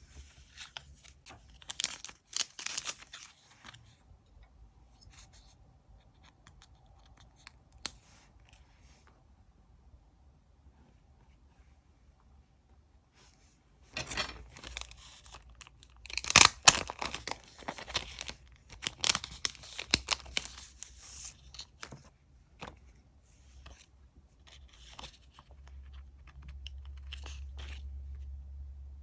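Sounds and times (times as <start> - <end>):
paper tearing and crinkling: 1.7 - 3.4, 16.1 - 20.7.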